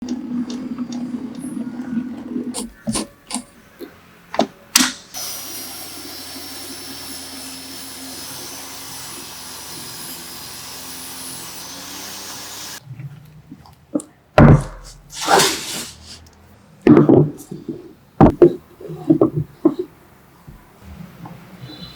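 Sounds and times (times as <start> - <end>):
power tool motor whining: 5.2 - 12.8, 14.8 - 16.2
sharp knocks: 14.4 - 15.7.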